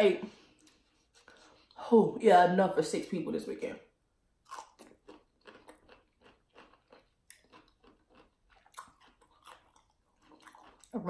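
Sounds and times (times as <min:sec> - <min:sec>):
wet crunchy chewing: 0:04.4 - 0:11.0.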